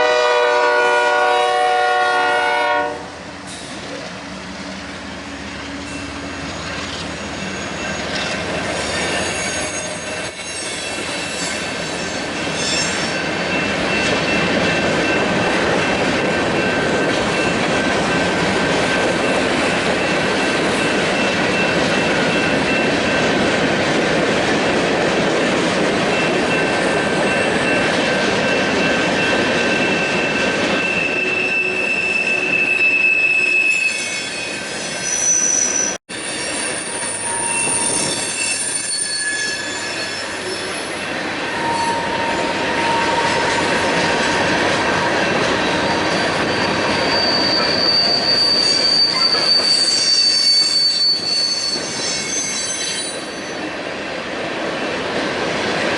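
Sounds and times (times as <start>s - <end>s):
train rumbling: 0.0s - 55.9s
train wheels squealing: 5.2s - 23.3s, 26.1s - 53.7s.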